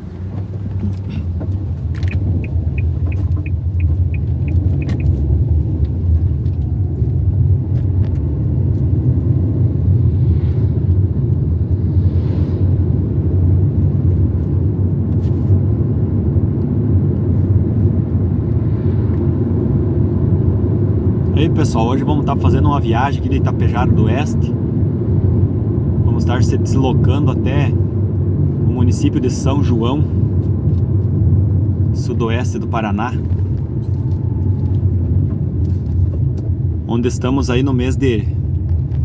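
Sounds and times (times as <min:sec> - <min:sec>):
car engine and tyres rumbling: 0:00.0 - 0:39.0
even ticks: 0:02.0 - 0:05.3.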